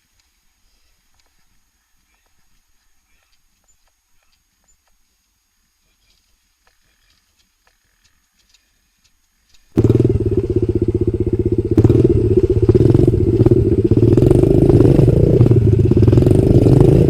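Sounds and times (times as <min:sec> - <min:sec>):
faint light ticks: 0:00.0 - 0:09.7
motorcycle engine running: 0:09.7 - 0:17.0.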